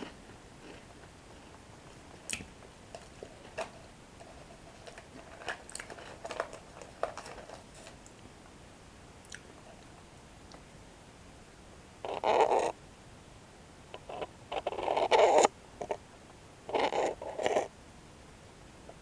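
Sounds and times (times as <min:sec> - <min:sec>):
chewing crunchy bread sticks: 0:00.0 - 0:08.2.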